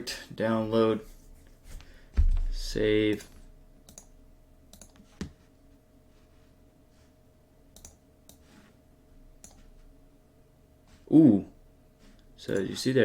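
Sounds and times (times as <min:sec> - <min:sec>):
faint steady hum: 0:00.0 - 0:13.0
faint computer mouse clicks: 0:03.9 - 0:04.1, 0:04.7 - 0:05.0, 0:07.8 - 0:08.5.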